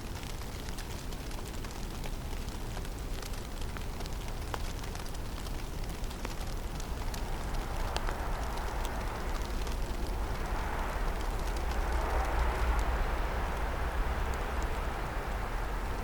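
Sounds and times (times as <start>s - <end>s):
low rumble of wind: 0.0s - 16.0s
snow ticking: 0.1s - 16.0s
broad rushing noise: 5.6s - 16.0s.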